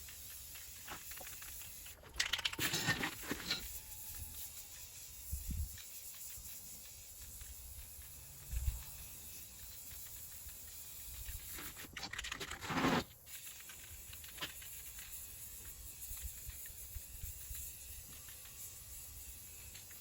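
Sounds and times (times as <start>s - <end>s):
spray paint can hissing: 0.0s - 20.0s.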